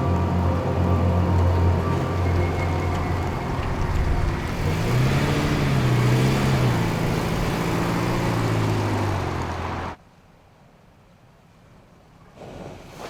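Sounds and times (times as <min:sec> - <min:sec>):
pickup truck engine running: 0:00.0 - 0:10.0.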